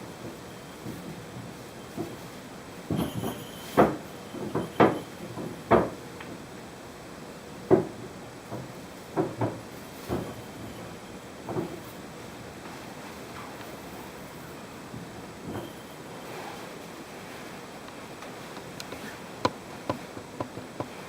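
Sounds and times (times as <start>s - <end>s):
short knocks and thumps: 18.6s - 21.0s.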